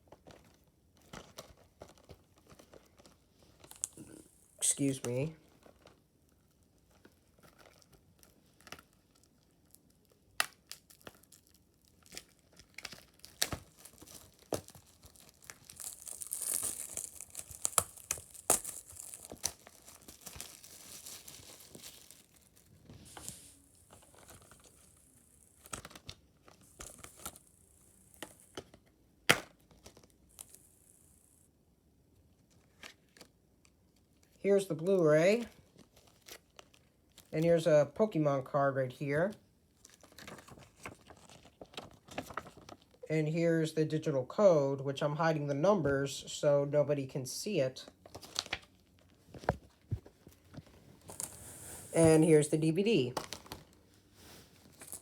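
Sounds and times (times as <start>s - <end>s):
shrink-wrap tearing and crinkling: 1.3s - 6.0s, 6.8s - 28.8s, 35.3s - 37.4s, 39.8s - 43.0s, 48.0s - 55.0s.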